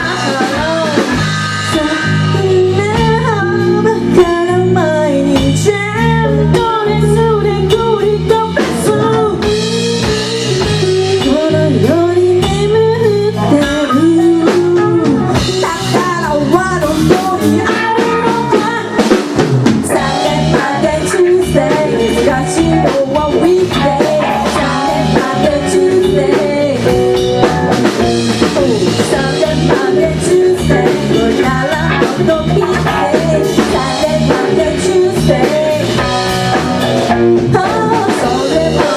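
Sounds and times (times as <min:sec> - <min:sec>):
bass guitar: 0:00.0 - 0:38.9
drum kit: 0:00.0 - 0:38.9
electric guitar: 0:00.0 - 0:38.9
lead melody line: 0:13.1 - 0:38.9.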